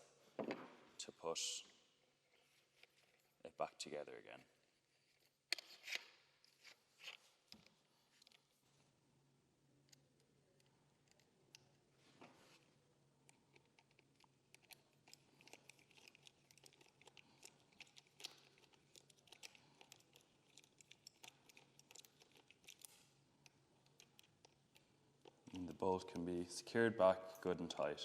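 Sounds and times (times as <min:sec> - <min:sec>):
small clicks and rattles: 0:13.2 - 0:25.8.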